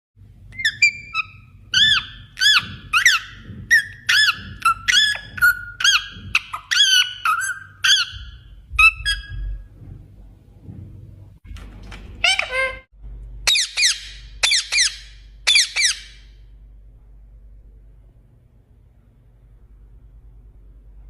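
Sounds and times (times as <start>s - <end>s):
parrot squawking: 0.5s - 9.4s, 12.2s - 12.9s, 13.5s - 16.3s.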